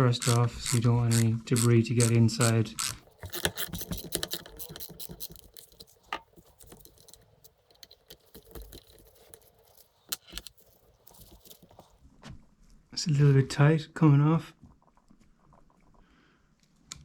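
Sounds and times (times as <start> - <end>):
screwdriver and metal parts clicking: 0.0 - 11.9.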